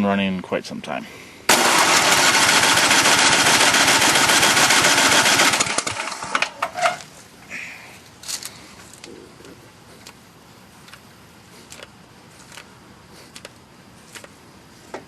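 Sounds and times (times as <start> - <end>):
engine starter cranking: 1.5 - 7.0.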